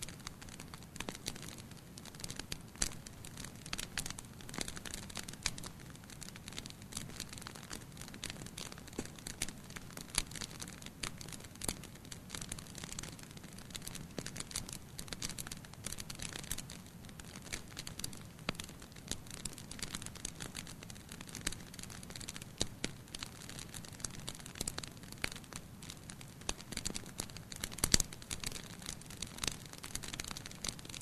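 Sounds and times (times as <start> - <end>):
low rumble of flame: 0.0 - 31.0
wood fire crackling and popping: 0.0 - 31.0.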